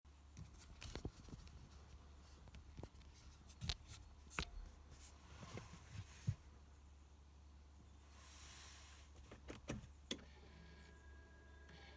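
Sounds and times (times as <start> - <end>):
faint low hum: 0.1 - 11.9
clicks and knocks of handling: 0.4 - 1.8.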